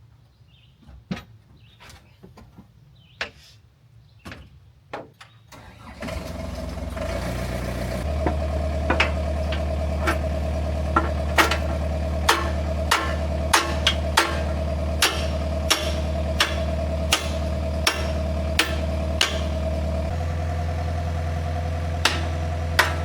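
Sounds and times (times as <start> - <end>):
diesel engine starting and idling: 5.5 - 23.0
sharp clicks and knocks: 8.2 - 10.3, 10.9 - 19.6, 22.0 - 23.0.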